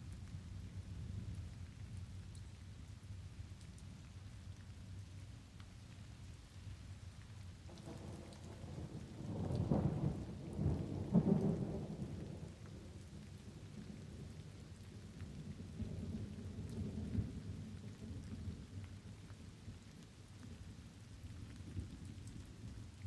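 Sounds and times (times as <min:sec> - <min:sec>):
steady rain: 0:00.0 - 0:23.0
rolling thunder: 0:07.8 - 0:12.6.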